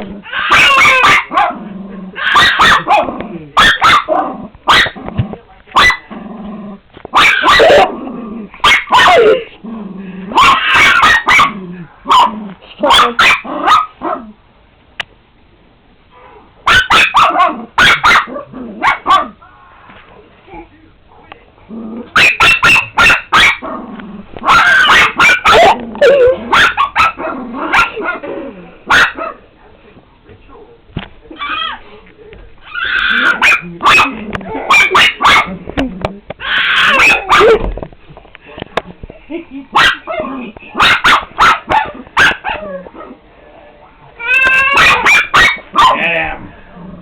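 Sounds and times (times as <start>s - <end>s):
dog barking: 0.3s - 1.6s, 2.2s - 5.0s, 5.8s - 6.1s, 7.1s - 7.9s, 8.6s - 9.5s, 10.3s - 14.3s, 16.2s - 19.4s, 22.2s - 23.7s, 24.4s - 28.3s, 28.9s - 29.4s, 32.9s - 35.5s, 36.4s - 37.6s, 39.8s - 43.2s, 44.7s - 46.1s
dog growling low: 1.5s - 2.2s, 6.1s - 6.9s, 7.7s - 8.6s, 9.3s - 10.4s, 11.5s - 12.7s, 21.6s - 22.2s, 23.6s - 24.4s, 27.2s - 28.8s, 46.0s - 47.0s.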